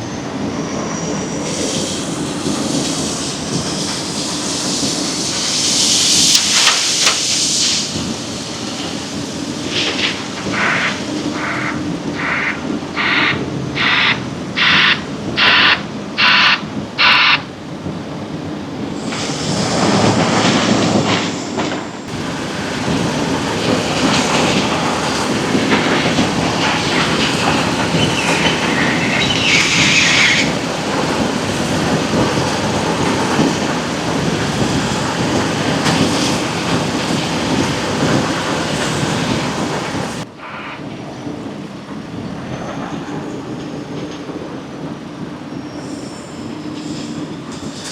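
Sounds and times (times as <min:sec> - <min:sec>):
reversing alarm beeps: 0:13.0 - 0:17.4.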